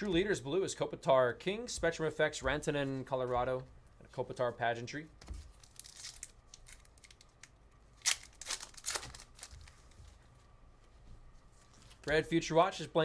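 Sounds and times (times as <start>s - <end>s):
card pack wrapper rustling: 5.3s - 10.2s
crisp crinkles and snaps: 5.3s - 10.2s.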